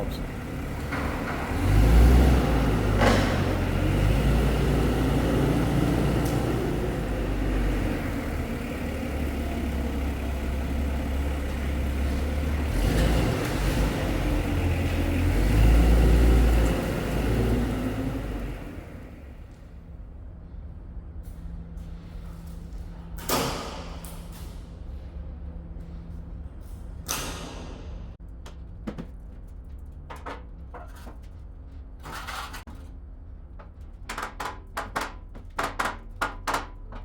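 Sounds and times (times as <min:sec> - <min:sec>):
heavy vehicle engine revving: 0:00.0 - 0:19.5.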